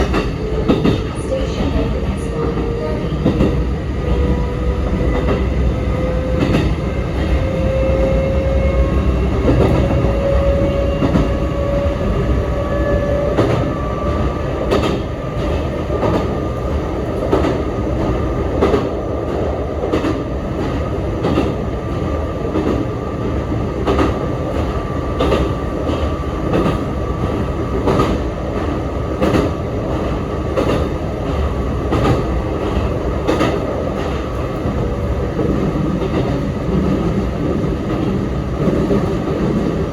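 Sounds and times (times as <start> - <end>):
train running rumble: 0.0 - 39.9
train motor whine: 4.1 - 14.8.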